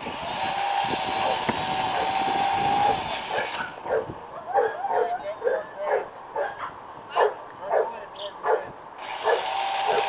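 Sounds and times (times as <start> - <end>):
chainsaw running at high revs: 0.0 - 3.7, 9.0 - 10.0.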